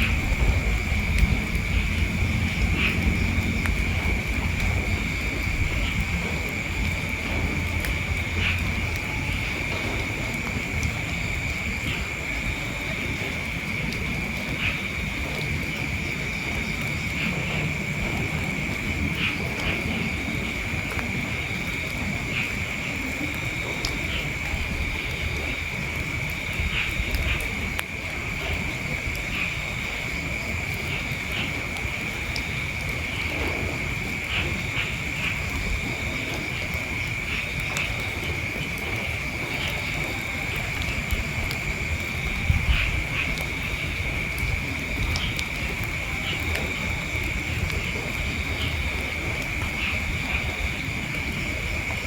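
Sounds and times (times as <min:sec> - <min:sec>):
low rumble: 0:00.0 - 0:12.2
low rumble on microphone: 0:00.0 - 0:52.0
night insects droning: 0:00.0 - 0:52.0.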